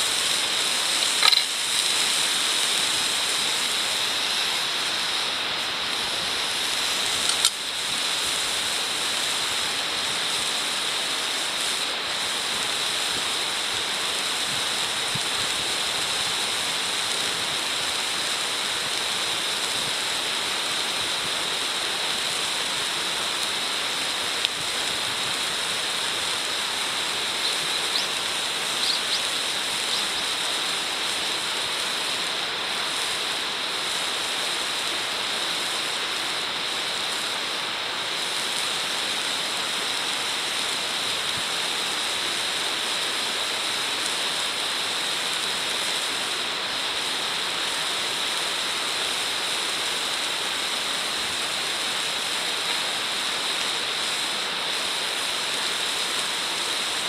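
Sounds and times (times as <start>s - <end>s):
food sizzling in a frying pan: 0.0s - 37.3s
sharp clicks: 1.0s - 1.6s.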